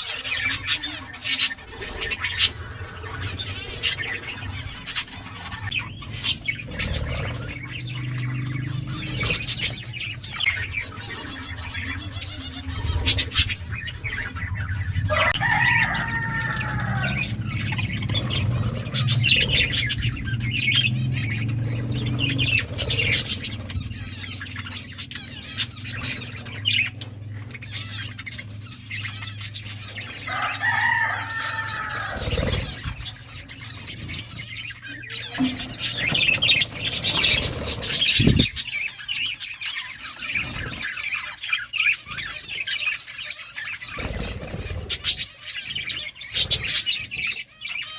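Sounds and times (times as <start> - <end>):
birds chirping: 0.0 - 47.9
long arching bird calls: 0.0 - 47.9
steady low hum: 0.7 - 30.3.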